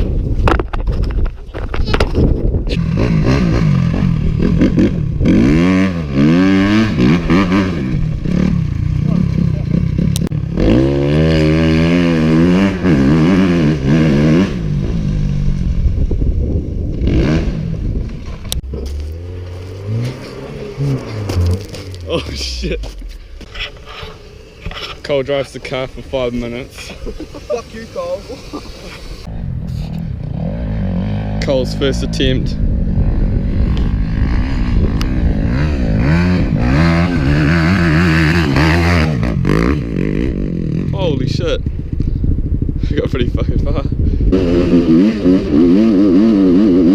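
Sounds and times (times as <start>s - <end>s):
dirt bike engine revving: 2.7s - 22.3s, 28.2s - 42.9s, 44.1s - 46.9s.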